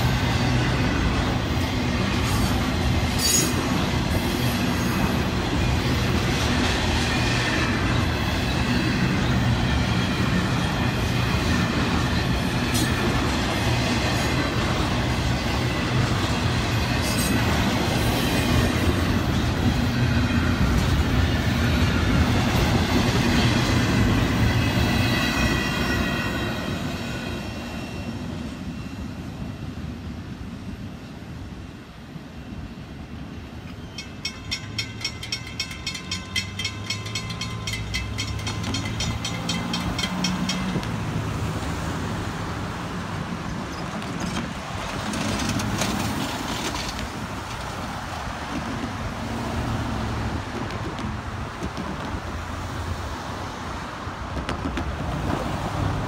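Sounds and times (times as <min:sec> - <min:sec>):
train wheels clacking: 0:00.0 - 0:27.6, 0:33.7 - 0:41.8, 0:43.5 - 0:49.1
crossing bell ringing: 0:33.7 - 0:41.4.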